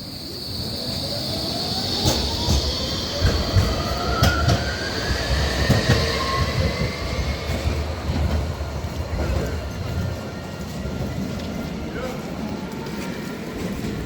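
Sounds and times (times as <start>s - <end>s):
low train rumble: 0.0s - 14.0s
high wheel squeal: 0.1s - 7.6s
rising whine: 0.1s - 9.1s
train wheels clicking over rail joints: 1.9s - 14.0s.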